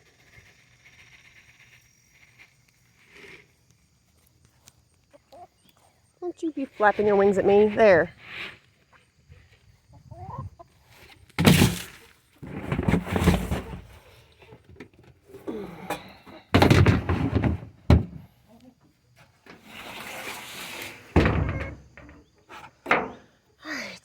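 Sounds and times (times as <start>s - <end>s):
chickens clucking: 5.0s - 11.1s
loud thumps: 21.2s - 22.2s.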